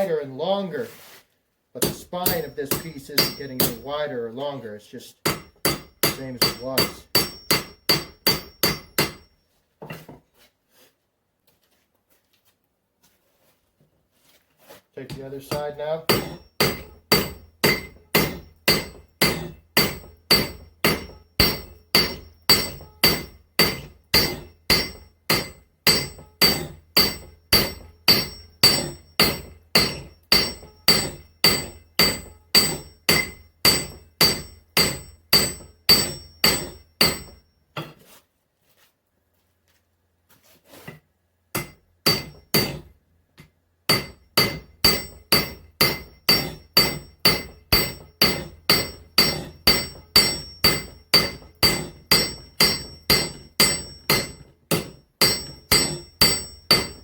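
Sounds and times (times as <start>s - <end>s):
hammer striking steel on anvil: 1.8s - 4.1s, 5.2s - 10.1s, 15.1s - 38.0s, 41.5s - 57.0s
ringing anvil tone: 1.8s - 4.2s, 5.2s - 9.4s, 15.4s - 37.6s, 41.6s - 42.9s, 43.9s - 57.0s.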